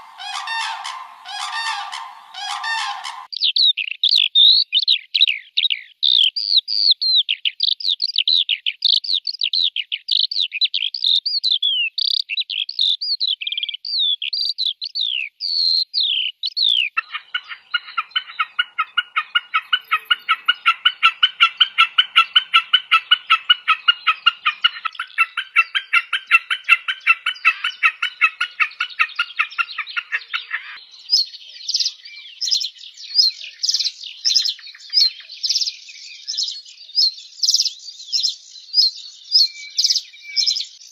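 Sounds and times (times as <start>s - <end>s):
rapid bird trill: 0.0s - 3.3s
high falling bird chirps: 0.0s - 3.5s, 17.0s - 40.9s
busy high bird chirping: 0.0s - 4.1s, 16.6s - 40.9s.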